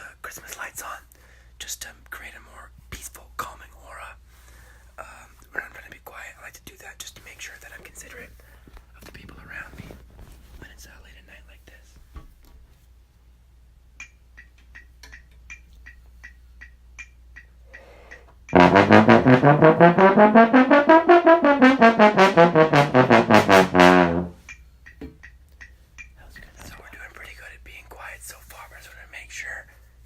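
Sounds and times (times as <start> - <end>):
brass instrument fast run: 18.5 - 24.4.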